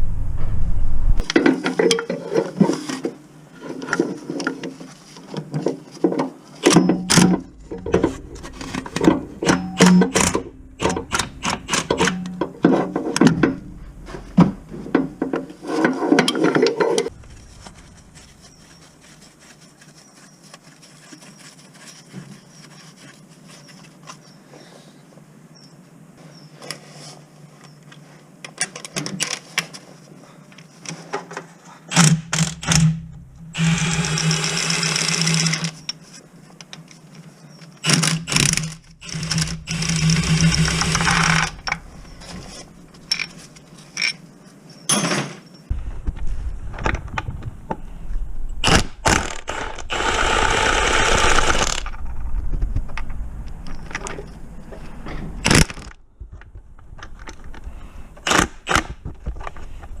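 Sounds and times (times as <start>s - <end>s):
cordless power tool running: 33.6s - 35.7s, 37.9s - 41.8s, 49.1s - 51.9s
tools and metal parts clicking: 42.9s - 44.3s.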